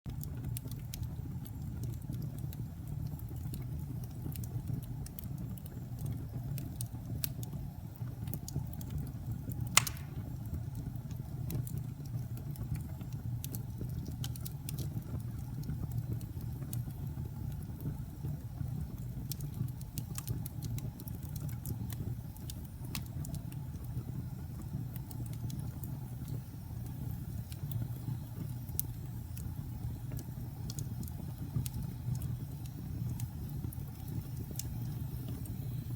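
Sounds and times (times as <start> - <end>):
fire crackling and popping: 0.1 - 35.9
sharp pop: 9.8 - 10.3.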